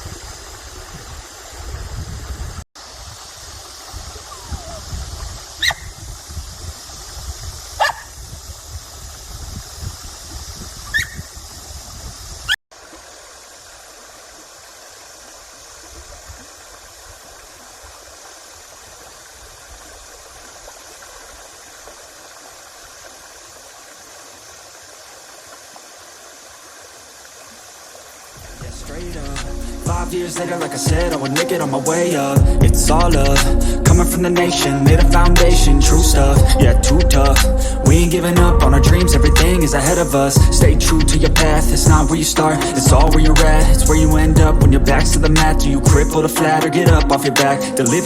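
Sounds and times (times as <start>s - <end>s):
creek rushing: 0.0s - 9.4s, 12.7s - 48.0s
small dog yipping: 4.1s - 4.8s, 5.6s - 5.9s, 7.8s - 8.1s, 10.9s - 11.2s
low rumble: 28.4s - 30.2s, 32.4s - 34.3s, 34.9s - 45.9s.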